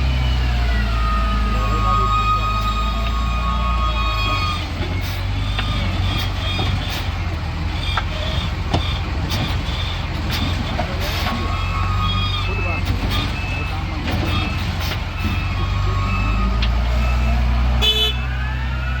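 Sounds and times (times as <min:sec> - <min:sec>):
reversing alarm beeping: 0:00.0 - 0:06.6, 0:11.1 - 0:19.0
heavy diesel engine running: 0:00.0 - 0:19.0.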